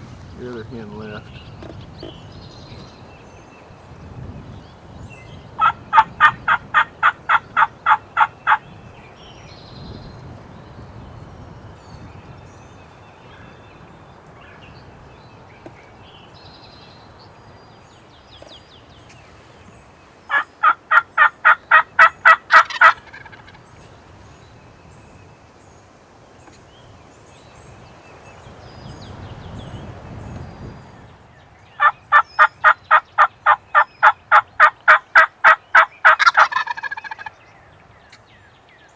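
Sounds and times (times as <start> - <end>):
turkey call yelps: 5.6 - 8.6, 20.3 - 23.8, 31.8 - 37.4.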